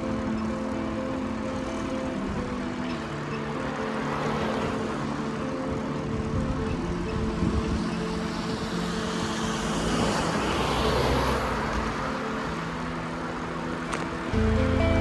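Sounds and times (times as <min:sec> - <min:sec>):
road traffic: 0:00.0 - 0:15.0
car passing close by: 0:07.3 - 0:15.0.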